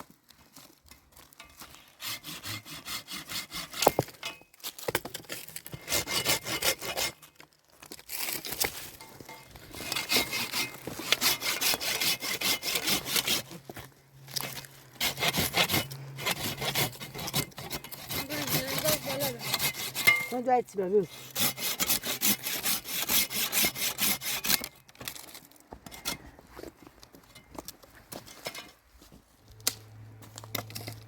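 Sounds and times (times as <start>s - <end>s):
hand saw cutting wood: 1.6s - 4.2s, 5.3s - 7.4s, 9.6s - 24.8s.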